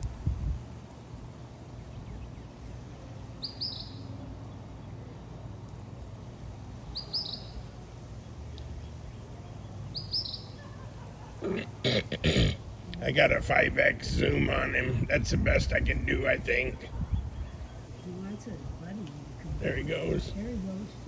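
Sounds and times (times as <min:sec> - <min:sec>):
low steady hum: 0:00.0 - 0:21.0
small bird chirping: 0:03.4 - 0:04.1, 0:06.8 - 0:10.8.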